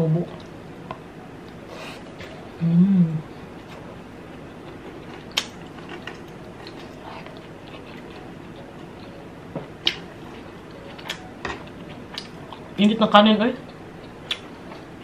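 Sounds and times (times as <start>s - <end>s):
person chewing: 4.6s - 12.7s.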